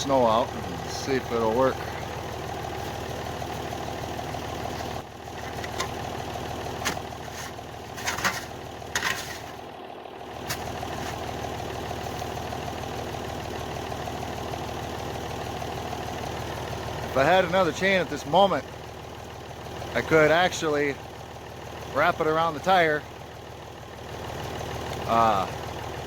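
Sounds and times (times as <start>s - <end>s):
tractor engine idling: 0.0s - 26.0s.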